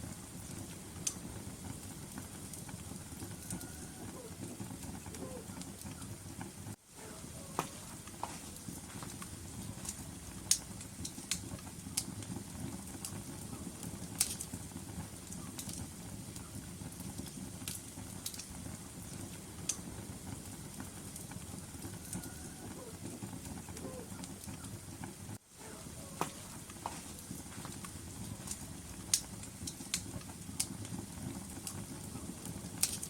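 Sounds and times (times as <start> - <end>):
fire crackling and popping: 0.0 - 33.0
low rumble of flames: 0.0 - 33.0.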